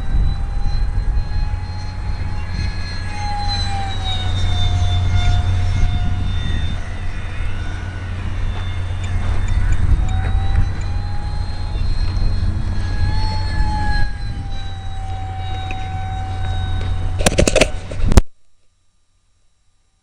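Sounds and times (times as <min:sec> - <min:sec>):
wind buffeting microphone: 0:00.0 - 0:18.2
small electric motor whine: 0:00.0 - 0:20.0.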